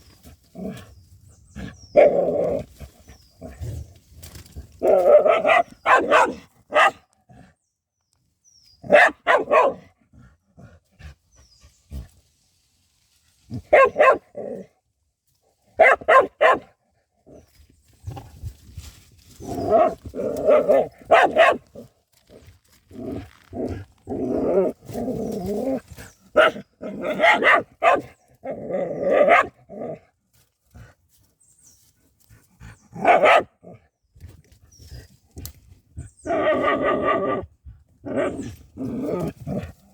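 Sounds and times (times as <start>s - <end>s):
dog barking: 4.8s - 7.1s, 8.8s - 9.9s, 13.6s - 14.3s, 15.8s - 16.7s, 19.8s - 21.7s, 26.4s - 28.2s, 29.2s - 29.6s, 33.0s - 33.5s.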